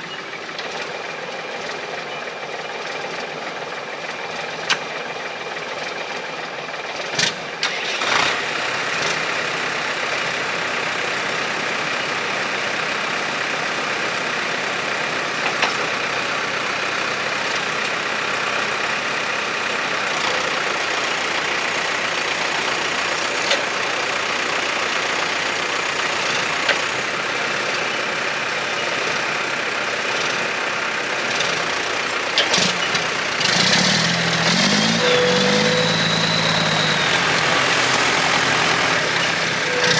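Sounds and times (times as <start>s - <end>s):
diesel truck engine idling: 8.0s - 39.9s.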